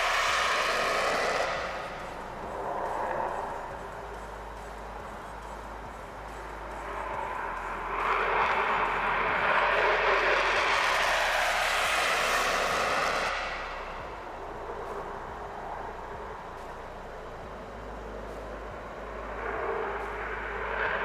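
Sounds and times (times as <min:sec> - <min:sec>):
jet engine roar: 0:00.0 - 0:04.2, 0:05.8 - 0:16.2.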